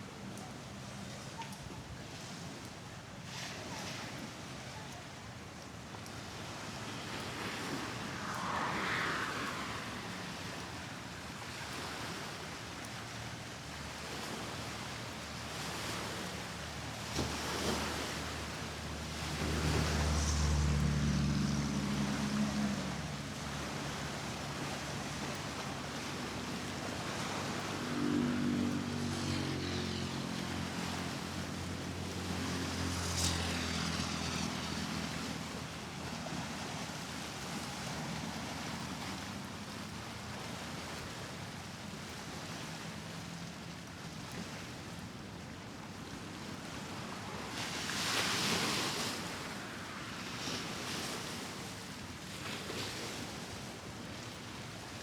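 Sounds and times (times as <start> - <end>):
vehicle whooshing past: 7.0 - 11.5, 19.1 - 25.2, 26.0 - 37.7
vehicle engine passing: 7.4 - 11.0, 19.1 - 25.2, 26.5 - 37.2.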